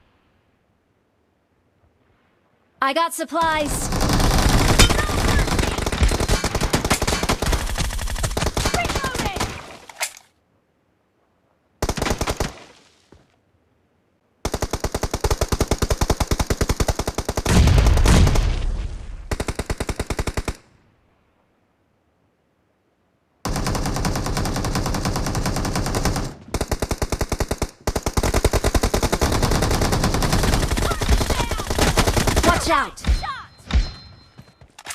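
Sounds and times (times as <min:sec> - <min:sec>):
video game automatic gunfire: 0:03.5 - 0:09.6, 0:23.5 - 0:33.0.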